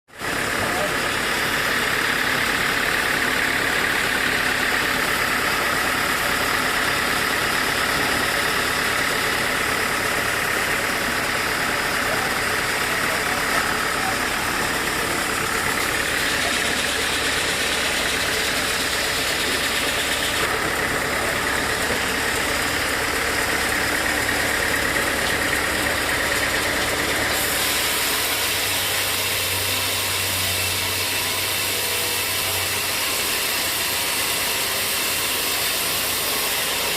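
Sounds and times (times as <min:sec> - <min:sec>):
sawmill machinery humming: 0:00.1 - 0:36.9.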